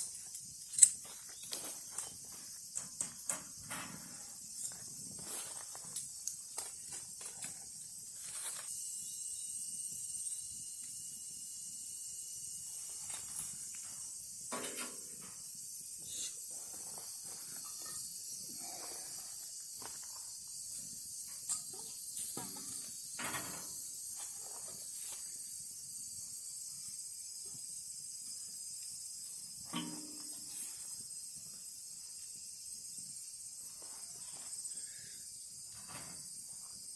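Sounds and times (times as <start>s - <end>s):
campfire crackles and clicks: 0.0s - 3.8s, 5.6s - 12.4s
steady high hiss: 0.0s - 36.9s.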